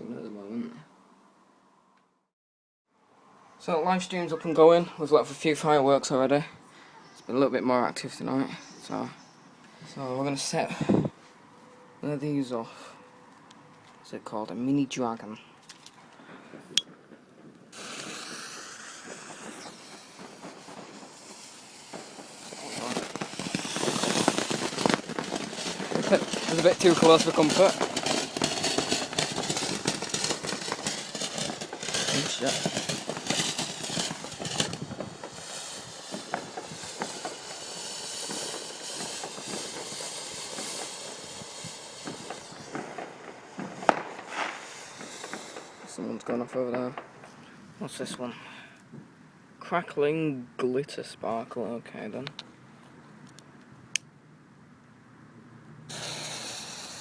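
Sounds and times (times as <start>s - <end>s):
firework hissing and crackling: 15.7s - 48.1s, 55.9s - 57.0s.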